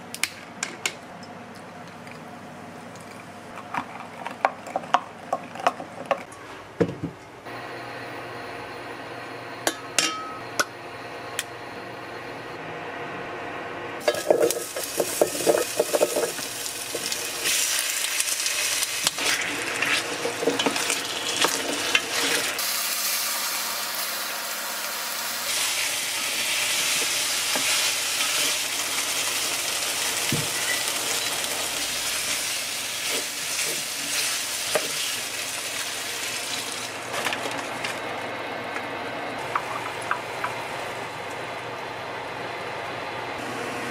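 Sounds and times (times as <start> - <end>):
food sizzling in a pan: 14.1 - 37.0.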